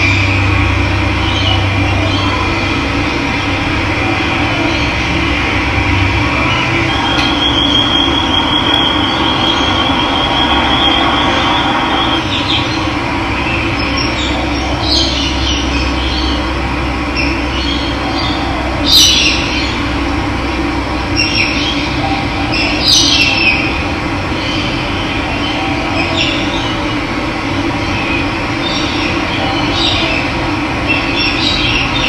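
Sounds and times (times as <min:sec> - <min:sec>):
birds calling: 0:00.0 - 0:20.1.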